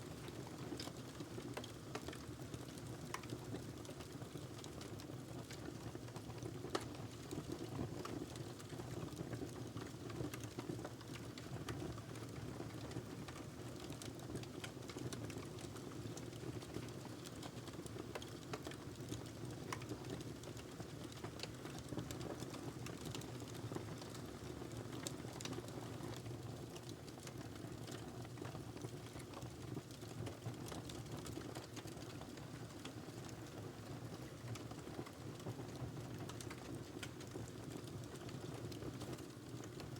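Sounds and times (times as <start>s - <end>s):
wood fire crackling: 0.2s - 33.6s, 34.2s - 39.9s.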